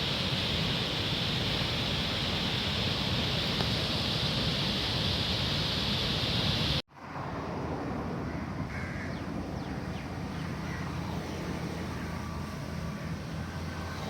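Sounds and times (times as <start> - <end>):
crow-like caws: 8.2 - 9.3.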